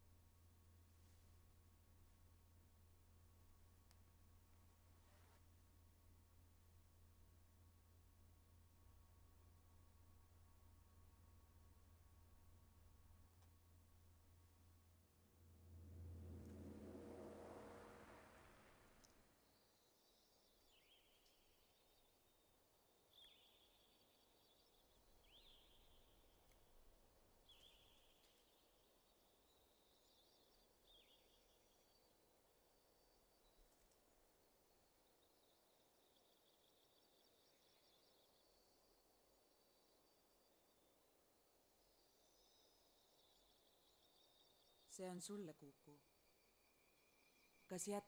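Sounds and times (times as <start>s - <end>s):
bird chirping: 23.1s - 26.4s, 27.4s - 32.1s.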